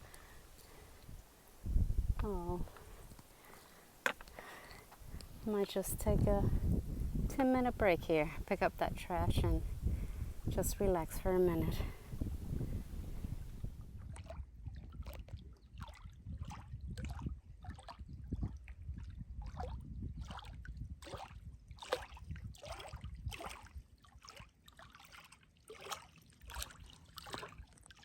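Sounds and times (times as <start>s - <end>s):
water sloshing and lapping: 11.8s - 28.0s.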